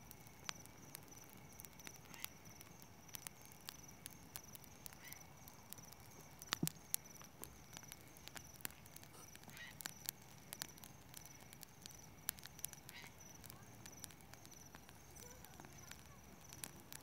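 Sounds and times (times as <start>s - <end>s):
bonfire crackling and popping: 0.0s - 17.0s
crickets chirping: 0.0s - 17.0s.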